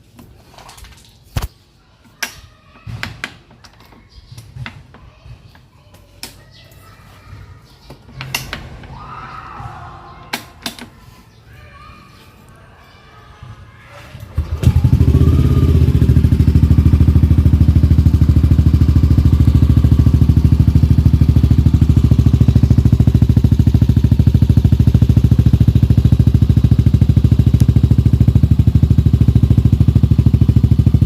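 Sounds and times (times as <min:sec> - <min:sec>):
motorcycle engine starting and idling: 0:14.2 - 0:31.0.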